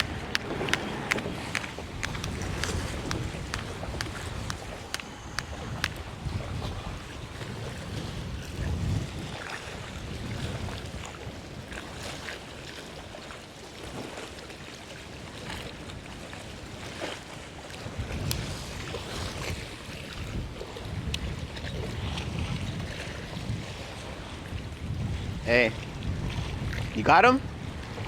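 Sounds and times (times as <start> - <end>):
faint ticks: 0.0 - 6.0
wind gusting over microphone: 0.0 - 12.0, 17.8 - 28.0.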